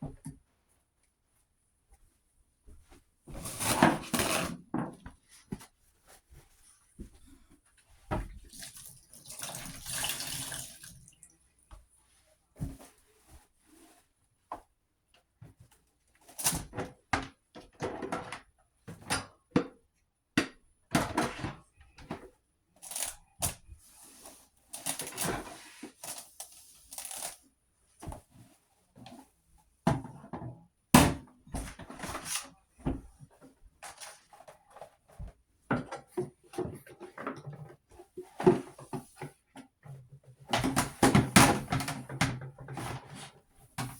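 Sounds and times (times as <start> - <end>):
scraping and rustling: 3.3 - 4.6
household items knocking and clunking: 35.1 - 43.9.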